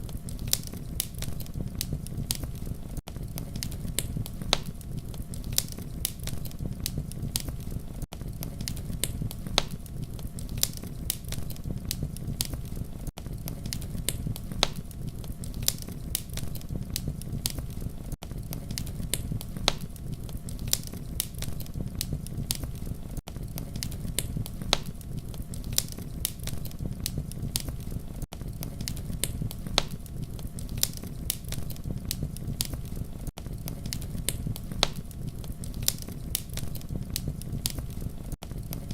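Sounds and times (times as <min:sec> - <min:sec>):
fire pops and snaps: 0:00.0 - 0:38.9
low rumble of flames: 0:00.0 - 0:38.9.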